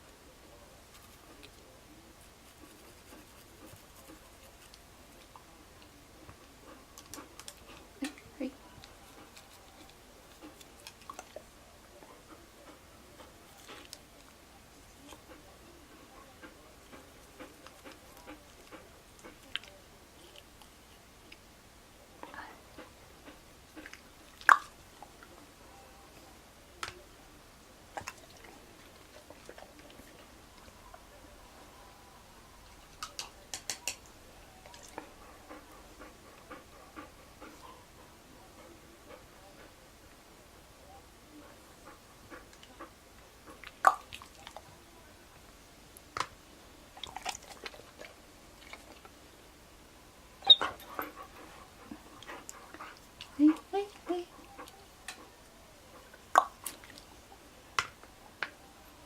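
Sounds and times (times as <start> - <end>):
toothbrush scratching in dog's mouth: 2.2 - 4.8.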